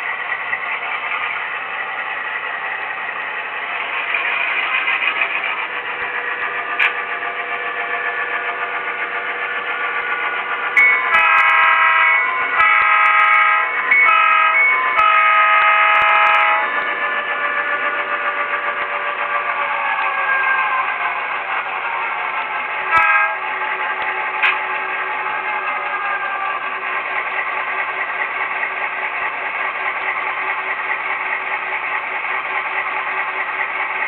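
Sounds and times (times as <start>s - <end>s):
model locomotive diesel engine: 0.0s - 34.0s
air horn blasts: 11.1s - 16.7s, 22.9s - 23.4s.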